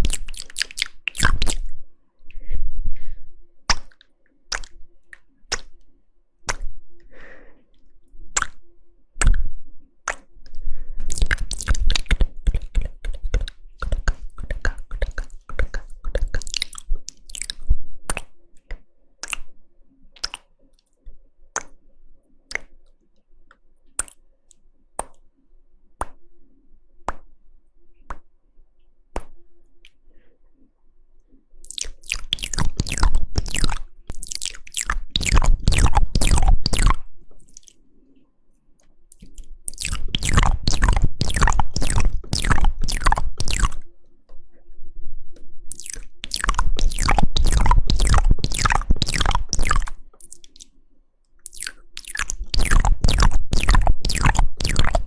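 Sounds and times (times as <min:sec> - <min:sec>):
wet mouth clicking and smacking: 0:00.0 - 0:01.7, 0:03.7 - 0:05.8, 0:06.5 - 0:06.7, 0:08.1 - 0:08.6, 0:09.2 - 0:09.4, 0:10.0 - 0:10.3, 0:11.1 - 0:19.6, 0:20.2 - 0:20.9, 0:22.5 - 0:22.8, 0:24.0 - 0:25.2, 0:31.6 - 0:37.8, 0:39.1 - 0:43.9, 0:45.7 - 0:50.8, 0:51.4 - 0:55.0.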